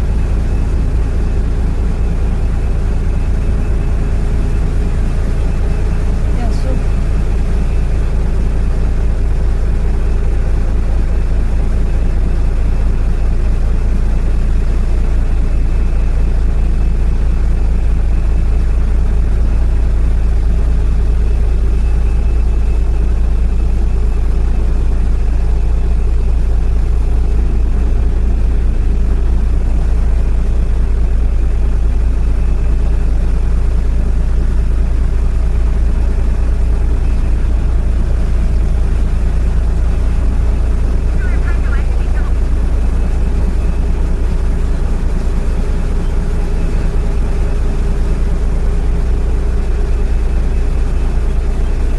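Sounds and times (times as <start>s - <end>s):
boat diesel engine droning: 0.0s - 51.9s.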